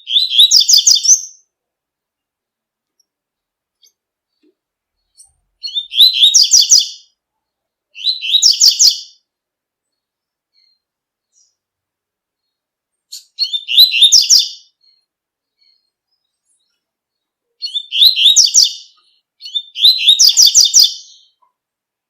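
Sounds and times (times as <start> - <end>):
bird singing rapid high notes: 5.6 - 7.1, 13.1 - 15.0, 17.6 - 21.4.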